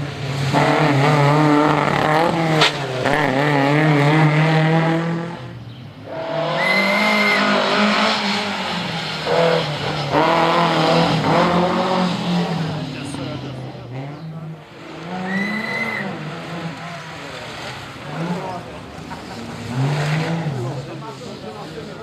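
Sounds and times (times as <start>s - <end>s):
rally car engine revving: 0.0s - 22.0s
brief high squeal: 15.2s - 16.2s.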